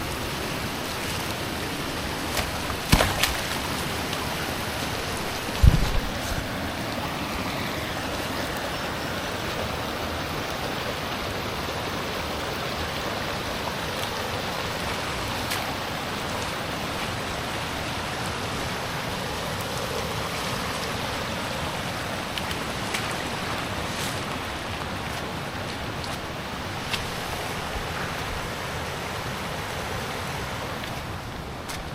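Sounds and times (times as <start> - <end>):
rushing creek water: 0.0 - 31.9
low thump: 5.6 - 6.1.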